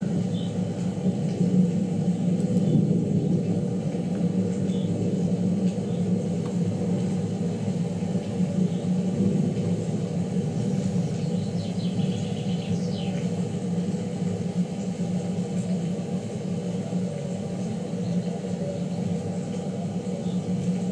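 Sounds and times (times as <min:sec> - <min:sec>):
rolling thunder rumble: 0:00.0 - 0:15.2.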